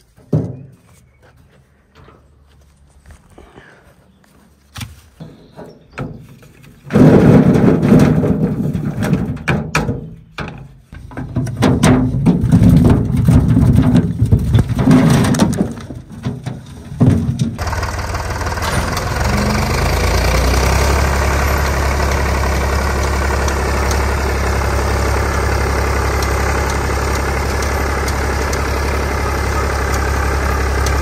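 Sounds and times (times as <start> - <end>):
diesel tractor engine running rough: 16.8 - 31.0.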